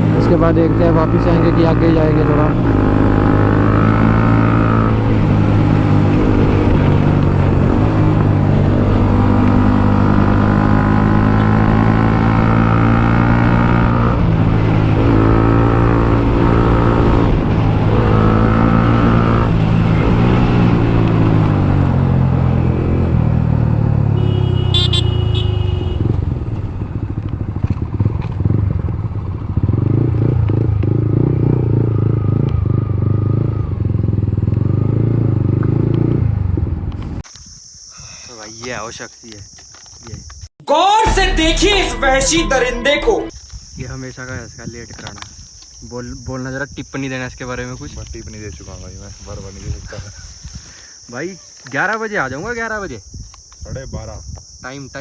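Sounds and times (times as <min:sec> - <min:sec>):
motorcycle engine: 0:00.0 - 0:37.2
short high-pitched tone: 0:40.7 - 0:43.3.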